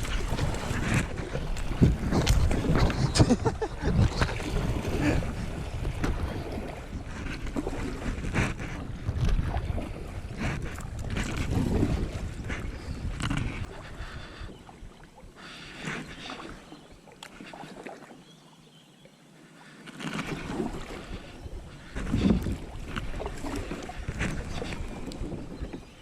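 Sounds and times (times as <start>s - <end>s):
lifejacket scratching camera: 0.0s - 5.5s
wind on microphone: 0.0s - 15.4s, 20.3s - 26.0s
paddle splashing water: 0.0s - 18.2s, 19.5s - 26.0s.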